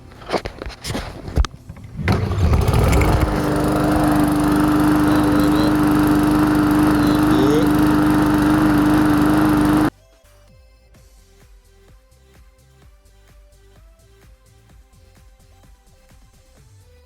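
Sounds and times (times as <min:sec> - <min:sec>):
lawn mower engine starting and running: 0:00.0 - 0:09.9.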